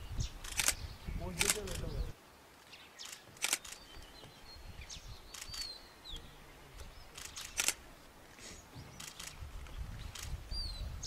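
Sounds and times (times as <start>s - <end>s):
faint outdoor background: 0.0s - 11.0s
sharp clicks: 0.4s - 0.8s, 1.4s - 1.9s, 3.0s - 3.9s, 5.3s - 5.7s, 6.8s - 7.8s, 9.0s - 10.4s
high whistled bird calls: 2.7s - 7.8s.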